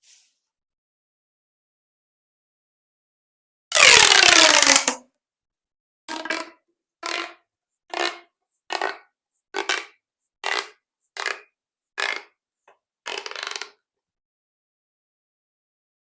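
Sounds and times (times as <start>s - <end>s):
plastic toy tubes crackling: 3.7s - 5.0s, 6.1s - 9.0s, 9.6s - 11.4s, 12.0s - 12.3s, 13.1s - 13.7s.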